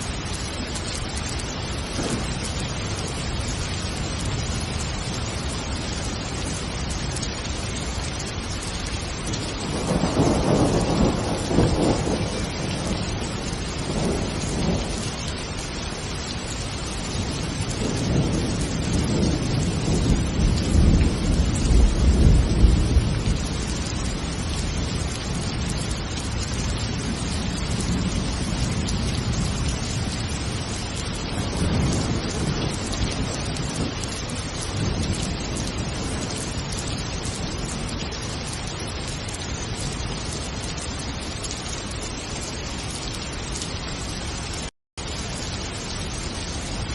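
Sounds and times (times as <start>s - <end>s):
heavy rain: 0.0s - 46.9s
rolling thunder: 9.4s - 15.2s, 17.0s - 36.7s.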